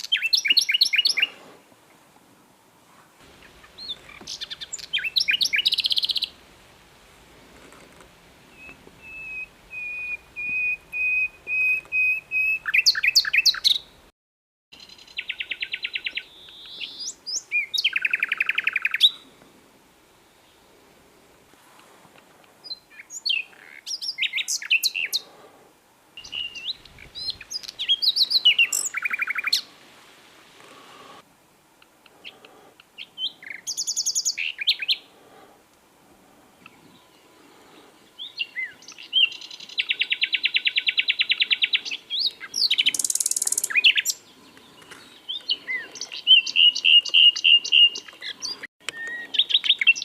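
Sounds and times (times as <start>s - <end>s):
nightingale singing: 0.0s - 1.4s, 3.3s - 6.5s, 8.5s - 14.0s, 14.8s - 19.3s, 22.6s - 25.3s, 26.2s - 29.7s, 31.8s - 35.1s, 36.6s - 50.0s.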